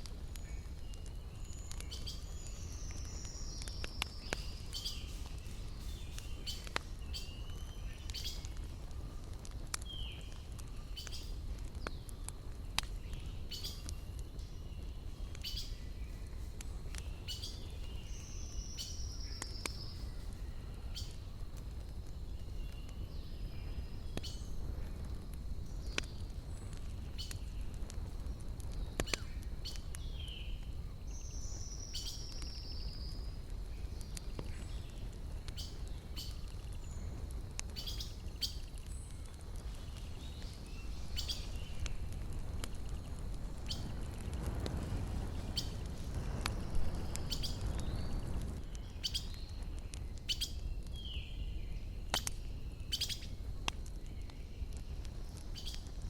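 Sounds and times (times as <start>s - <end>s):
campfire crackling: 0.0s - 56.0s
birds singing: 0.3s - 8.6s, 9.8s - 21.3s, 28.7s - 42.0s, 42.6s - 44.2s, 46.5s - 53.4s, 54.0s - 56.0s.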